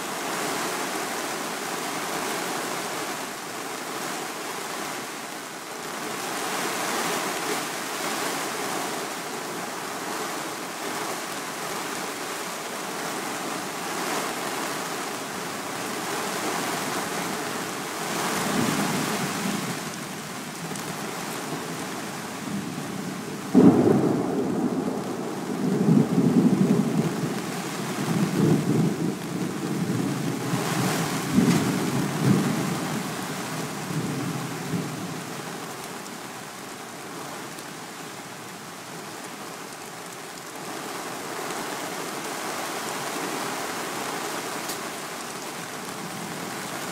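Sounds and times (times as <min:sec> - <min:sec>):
heavy rain hissing: 0:00.0 - 0:46.9
thunder rumbling: 0:23.5 - 0:27.4
loud thunderclap: 0:23.6 - 0:27.0.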